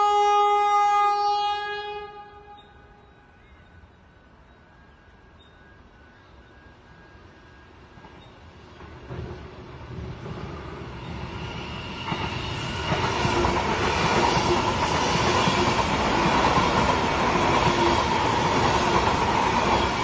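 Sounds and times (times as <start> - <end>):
train whine: 0.0 - 20.0
train wheels rumbling on rails: 5.4 - 20.0.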